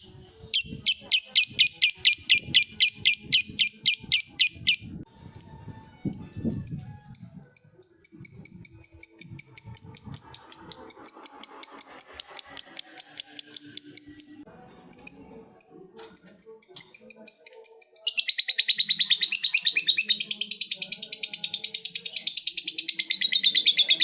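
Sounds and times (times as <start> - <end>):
lovebird chattering call: 7.6 - 14.4.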